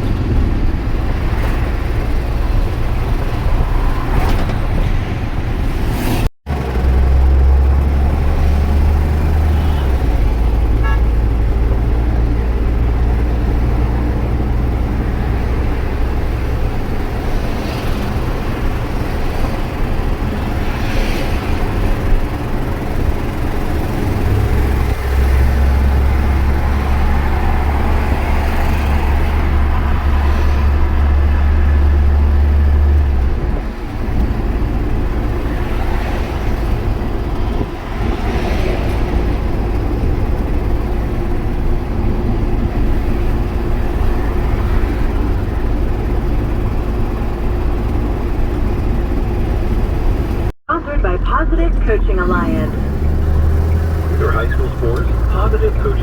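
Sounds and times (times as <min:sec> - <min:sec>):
road noise: 0:00.0 - 0:56.0
truck diesel engine drone: 0:00.0 - 0:56.0.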